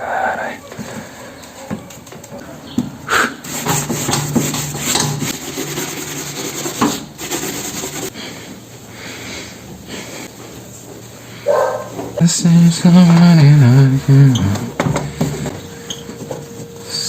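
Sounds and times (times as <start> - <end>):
scrubbing a microwave oven: 3.4 - 8.4, 9.7 - 17.0.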